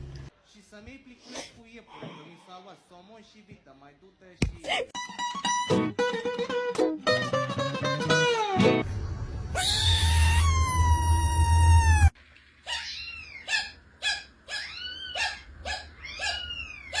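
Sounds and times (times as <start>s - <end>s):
cat meowing: 9.6s - 12.1s, 14.5s - 17.0s.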